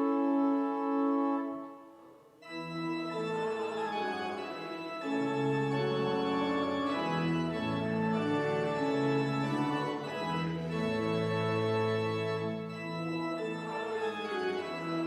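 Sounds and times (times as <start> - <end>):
organ playing a hymn: 0.0 - 1.8, 2.4 - 15.0.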